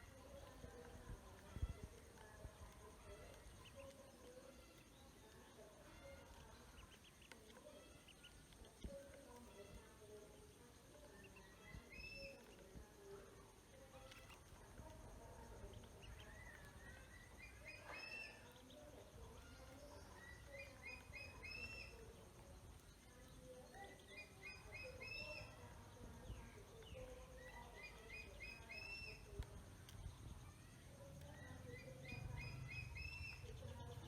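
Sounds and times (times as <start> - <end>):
birds chirping: 0.0 - 34.0
faint background noise: 0.0 - 34.0
soft wavering bird calls: 11.1 - 12.8, 15.9 - 22.3, 23.0 - 34.0.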